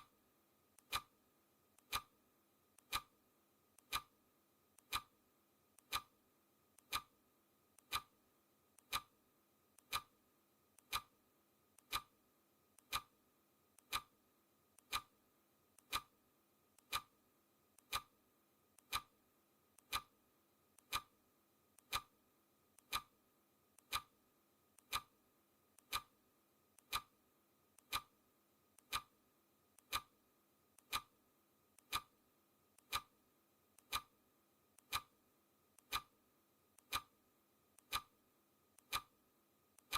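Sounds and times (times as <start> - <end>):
clock ticking: 0.8 - 1.1, 1.8 - 2.2, 2.8 - 3.1, 3.8 - 4.1, 4.8 - 5.1, 5.8 - 6.1, 6.8 - 7.1, 7.8 - 8.2, 8.8 - 9.1, 9.8 - 10.1, 10.8 - 11.2, 11.8 - 12.1, 12.8 - 13.1, 13.8 - 14.2, 14.8 - 15.1, 15.8 - 16.2, 16.8 - 17.1, 17.8 - 18.2, 18.8 - 19.1, 19.8 - 20.2, 20.8 - 21.2, 21.8 - 22.1, 22.8 - 23.1, 23.8 - 24.2, 24.8 - 25.2, 25.8 - 26.2, 26.8 - 27.2, 27.8 - 28.2, 28.8 - 29.2, 29.8 - 30.2, 30.8 - 31.1, 31.8 - 32.2, 32.8 - 33.2, 33.8 - 34.2, 34.8 - 35.2, 35.8 - 36.1, 36.8 - 37.1, 37.8 - 38.2, 38.8 - 39.2.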